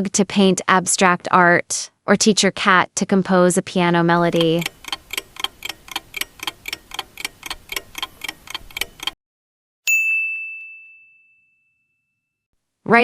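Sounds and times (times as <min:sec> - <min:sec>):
clock ticking: 0:04.2 - 0:09.2
bright ding: 0:09.9 - 0:12.2.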